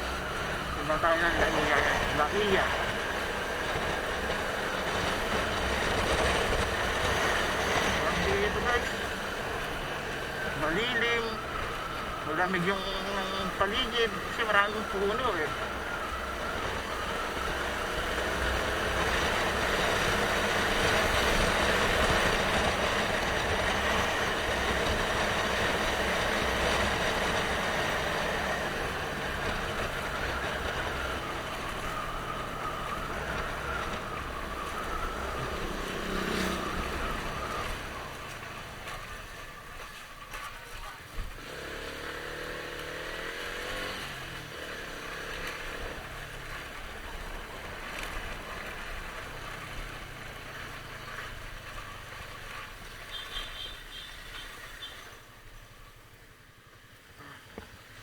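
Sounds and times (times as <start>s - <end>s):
motorcycle engine running: 0.0s - 55.1s
wind and road rush: 0.0s - 58.0s.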